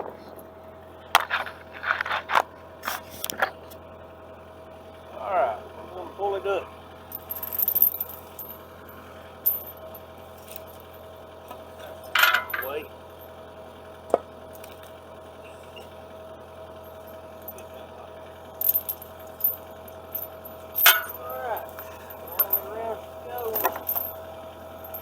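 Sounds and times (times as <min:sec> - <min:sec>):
low engine hum: 0:00.0 - 0:25.0
chain clinking and rattling: 0:07.1 - 0:13.4, 0:16.8 - 0:25.0.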